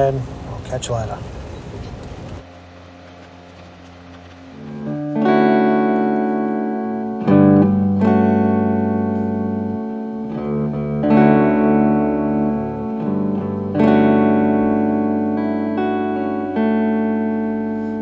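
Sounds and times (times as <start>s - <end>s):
guitar chords: 4.0s - 18.0s.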